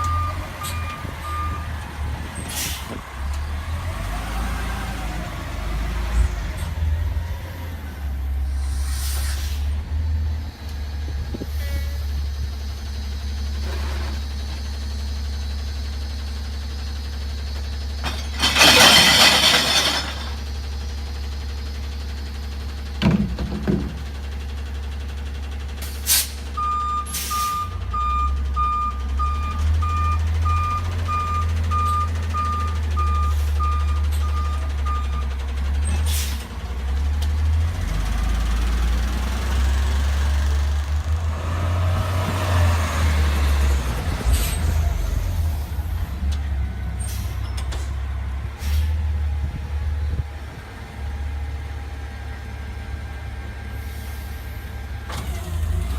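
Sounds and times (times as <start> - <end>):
reversing alarm beeping: 0.0 - 1.8, 26.6 - 35.3
garbage truck engine hum: 0.0 - 55.9
air brake hiss: 2.5 - 3.0, 8.5 - 9.8, 25.8 - 26.5, 27.1 - 27.6, 36.0 - 36.5, 47.0 - 47.4, 48.6 - 49.1, 53.8 - 54.7
knocks from truck: 23.0 - 24.2.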